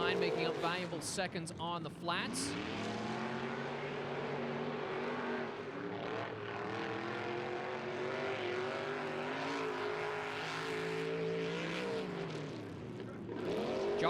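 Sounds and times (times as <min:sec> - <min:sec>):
truck engine revving hard: 0:02.3 - 0:12.6, 0:13.3 - 0:14.0.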